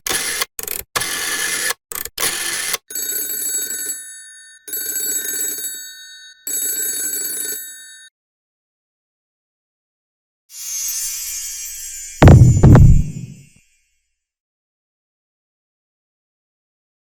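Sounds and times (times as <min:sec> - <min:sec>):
telephone ringing: 0:02.6 - 0:08.1
burst of noise: 0:12.2 - 0:13.4.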